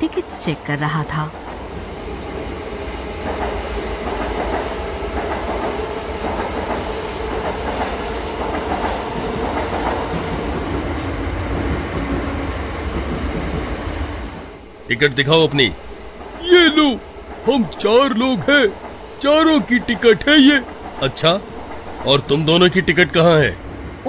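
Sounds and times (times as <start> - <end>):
train rumbling at speed: 0.0 - 24.0
wheels clacking over rail joints: 3.2 - 13.8.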